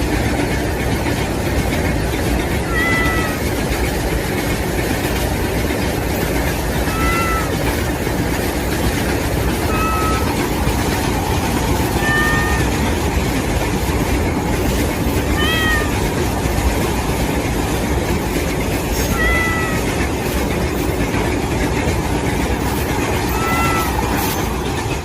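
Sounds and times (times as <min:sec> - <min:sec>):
toy train whirring: 0:00.0 - 0:25.0
kitten meowing: 0:02.6 - 0:03.5, 0:06.7 - 0:07.8, 0:09.5 - 0:10.6, 0:11.8 - 0:12.9, 0:15.2 - 0:16.2, 0:18.9 - 0:20.0, 0:23.2 - 0:24.2.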